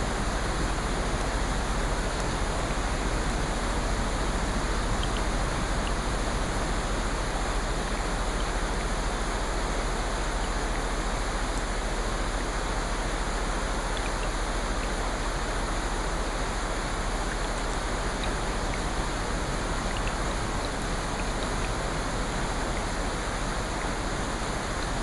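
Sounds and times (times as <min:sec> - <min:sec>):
raindrop ticks: 0:00.0 - 0:09.3, 0:17.2 - 0:25.0
steady rain: 0:00.0 - 0:25.0.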